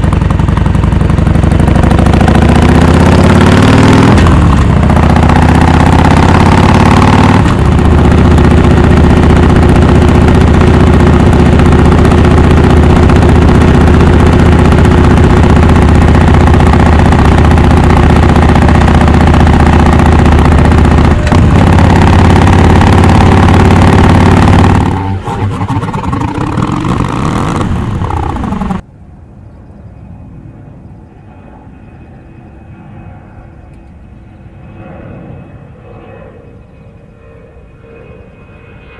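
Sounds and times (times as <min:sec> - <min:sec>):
motorcycle engine running loud: 0:00.0 - 0:28.8.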